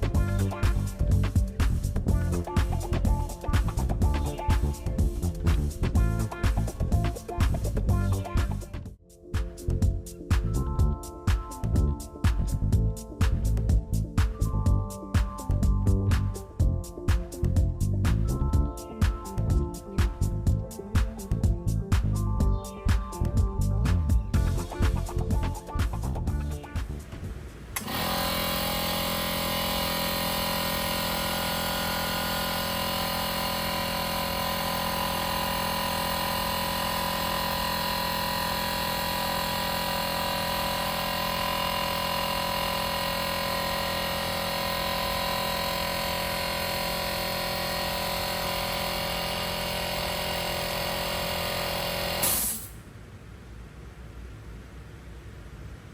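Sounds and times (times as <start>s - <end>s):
compressor air hiss: 0.0s - 7.8s, 26.9s - 52.8s
air compressor running: 0.0s - 22.1s, 23.8s - 52.8s.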